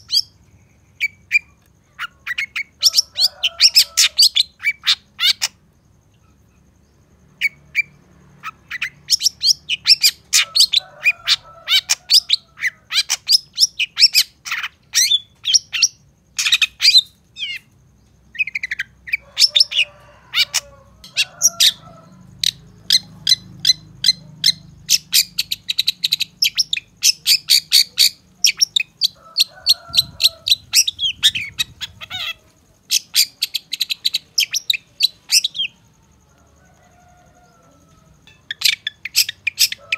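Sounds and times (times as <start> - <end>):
bird singing high chirps: 22.4 - 35.8.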